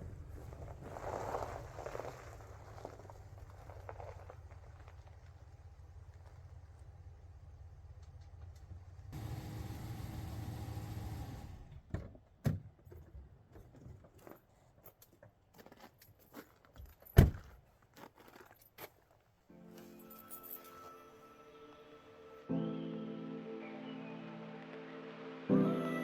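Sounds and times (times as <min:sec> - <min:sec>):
vehicle engine rumbling: 0:00.0 - 0:11.9.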